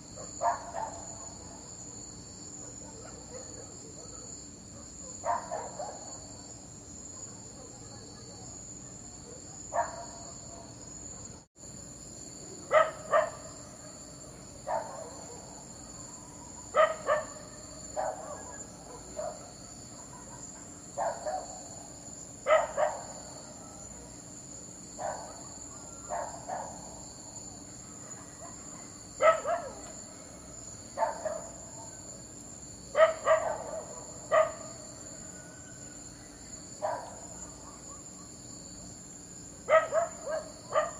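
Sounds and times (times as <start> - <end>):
insects chirping: 0.0 - 40.9
dog barking: 0.2 - 2.0, 2.6 - 6.2, 7.1 - 11.4, 12.7 - 14.0, 14.6 - 15.7, 16.5 - 21.7, 22.4 - 24.2, 25.0 - 27.0, 28.0 - 30.0, 31.0 - 31.9, 32.9 - 34.8, 36.8 - 38.4, 39.6 - 40.9.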